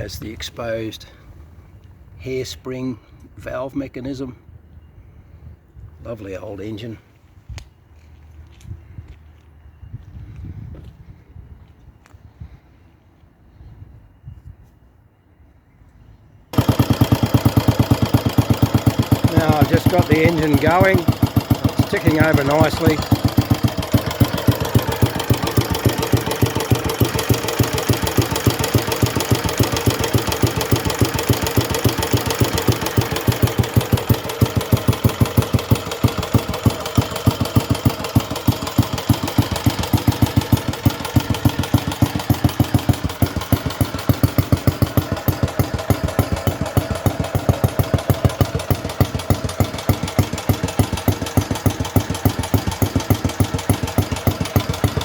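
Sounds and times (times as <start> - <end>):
motorcycle engine idling: 16.5 - 55.0.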